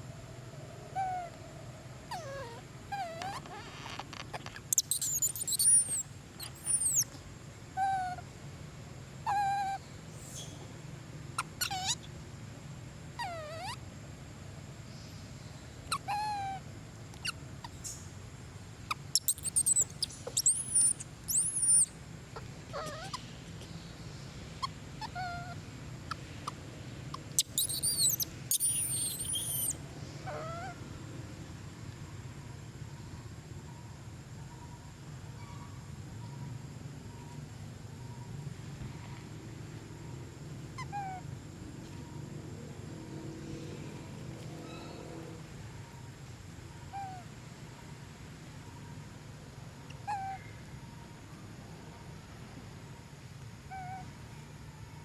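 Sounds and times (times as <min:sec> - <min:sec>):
monkeys squealing: 0:02.1 - 0:07.1, 0:07.8 - 0:08.2, 0:09.3 - 0:09.8, 0:11.4 - 0:12.1, 0:13.2 - 0:13.8, 0:15.9 - 0:16.6, 0:18.9 - 0:23.3, 0:24.6 - 0:25.6, 0:26.4 - 0:30.7, 0:40.8 - 0:41.3
monkeys cooing: 0:04.7 - 0:07.0, 0:18.9 - 0:23.2, 0:27.2 - 0:30.7.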